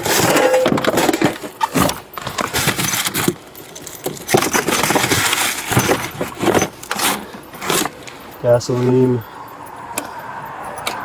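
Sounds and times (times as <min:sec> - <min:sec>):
rustling and clattering items: 0:00.0 - 0:09.4.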